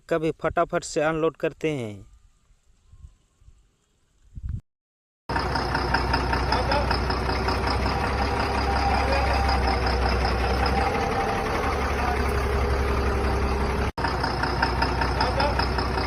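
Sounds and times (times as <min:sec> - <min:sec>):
truck engine idling: 0:05.3 - 0:16.0.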